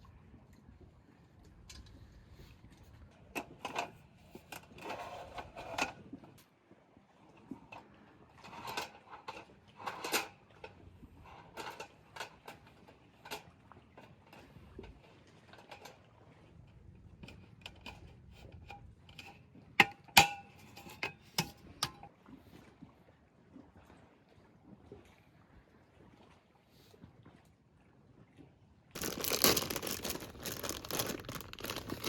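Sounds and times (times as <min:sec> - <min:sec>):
small clicks and knocks: 0:29.0 - 0:32.0.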